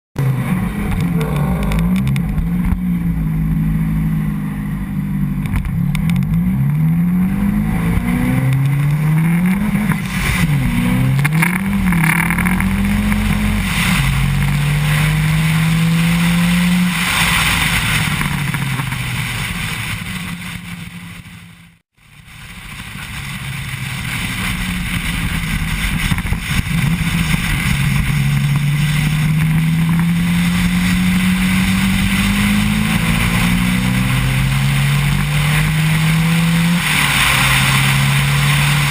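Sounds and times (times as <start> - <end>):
car engine revving through gears: 0.2 - 18.9, 26.7 - 38.9.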